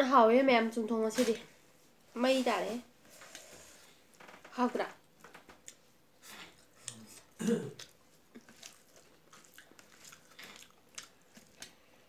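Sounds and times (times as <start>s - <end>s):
wet chewing and mouth clicks: 5.5s - 11.9s.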